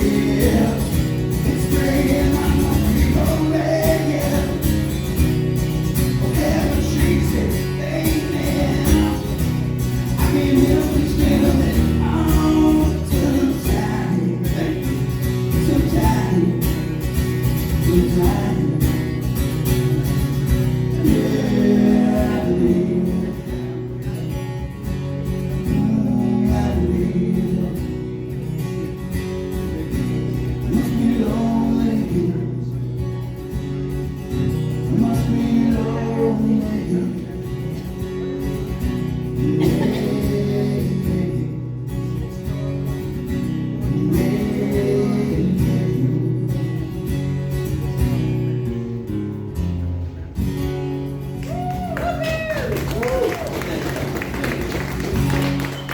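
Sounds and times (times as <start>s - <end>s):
rock song with guitar: 0.0s - 51.4s
person singing: 39.4s - 41.6s.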